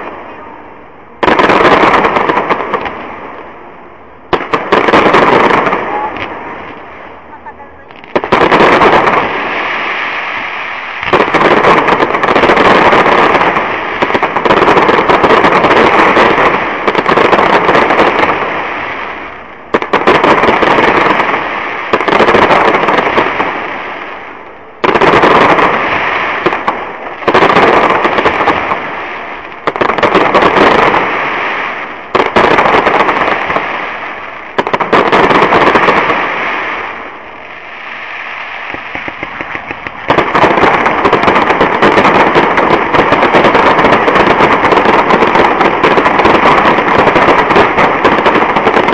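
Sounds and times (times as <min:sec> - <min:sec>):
fireworks bangs: 0:00.0 - 0:48.9
fireworks crackle: 0:00.0 - 0:48.9.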